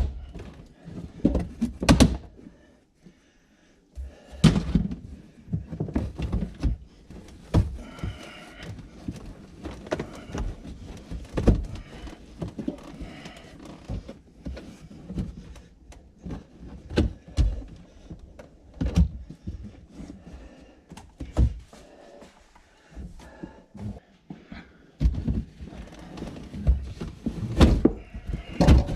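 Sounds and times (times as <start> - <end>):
thuds and knocks of carpet pulling: 25.0 - 28.9.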